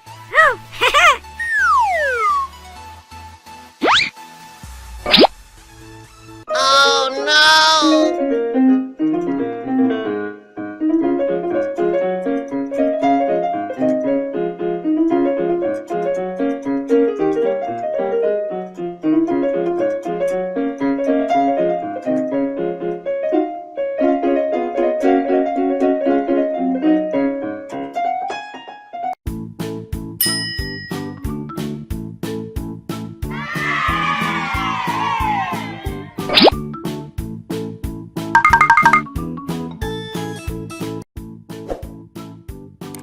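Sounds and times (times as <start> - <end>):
quick piano melody: 1.4 - 2.5, 38.4 - 39.2
clicks and bell-like dings: 30.2 - 31.2, 38.4 - 39.1.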